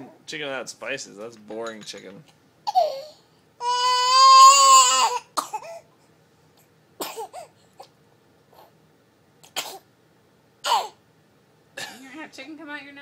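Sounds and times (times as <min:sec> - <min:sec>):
baby coughing and gagging: 0:02.6 - 0:03.8, 0:04.7 - 0:05.9, 0:07.0 - 0:07.6, 0:09.5 - 0:09.9, 0:10.6 - 0:11.0, 0:11.8 - 0:12.0
baby squealing: 0:02.7 - 0:05.3.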